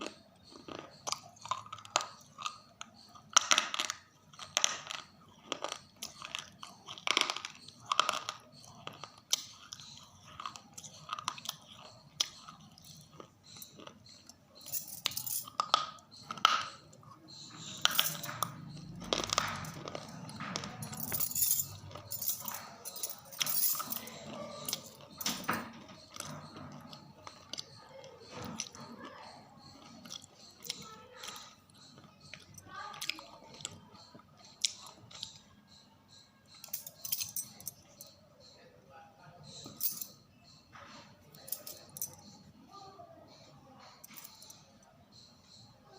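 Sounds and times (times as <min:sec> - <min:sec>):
crunchy biting and chewing: 0:00.0 - 0:14.7, 0:15.4 - 0:20.9, 0:25.8 - 0:35.8.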